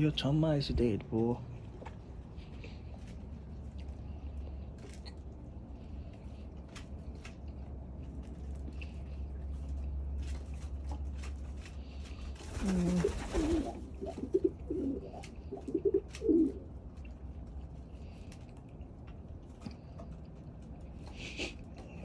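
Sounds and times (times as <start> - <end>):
pigeons cooing: 12.2 - 16.8.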